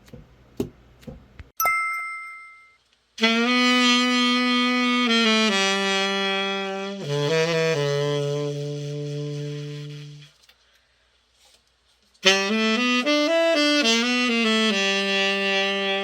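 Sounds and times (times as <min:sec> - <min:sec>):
short bright ringing tone: 0:01.6 - 0:02.8
tenor saxophone low notes: 0:03.2 - 0:10.4, 0:12.2 - 0:16.0.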